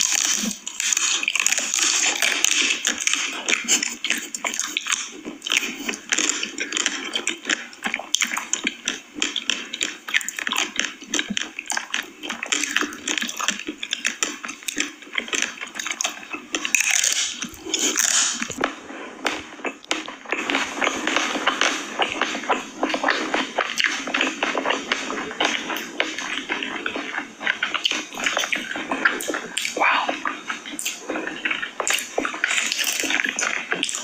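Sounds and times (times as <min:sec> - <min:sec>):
wet mouth smacking and chewing: 0:00.0 - 0:34.0
small mouth clicks: 0:27.8 - 0:34.0.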